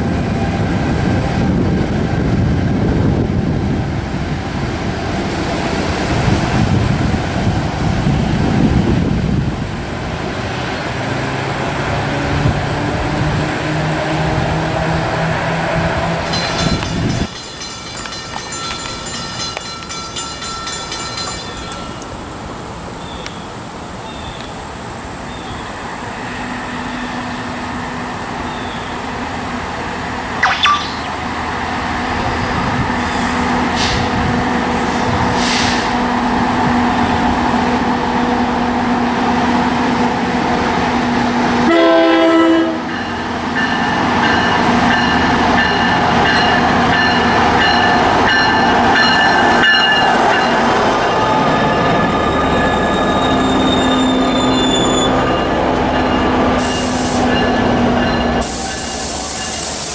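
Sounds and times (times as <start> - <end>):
diesel locomotive hauling train: 0.0 - 59.9
locomotive horn blast: 41.6 - 42.9.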